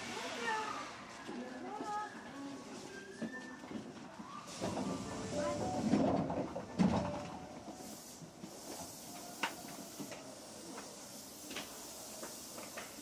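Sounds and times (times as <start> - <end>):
electric train hissing: 7.2 - 13.0.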